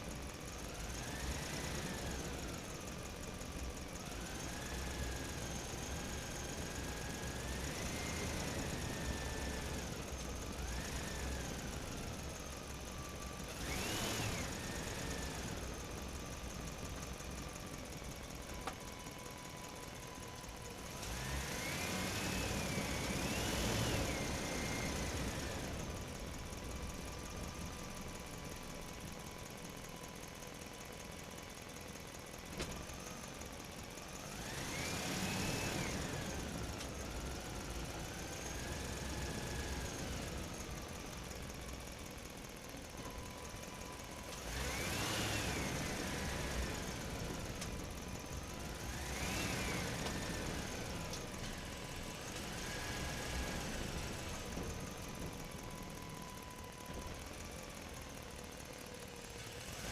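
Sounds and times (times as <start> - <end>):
cartoon engine droning and revving: 4.1 - 17.3, 20.4 - 27.6, 34.2 - 40.7, 44.3 - 55.7.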